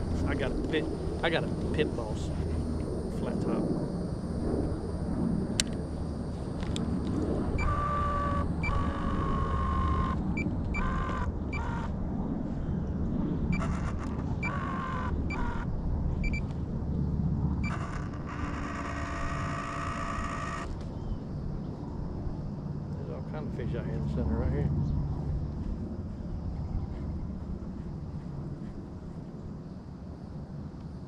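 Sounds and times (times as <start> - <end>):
small electric motor whining: 6.6 - 12.0, 13.5 - 16.5, 17.6 - 20.8.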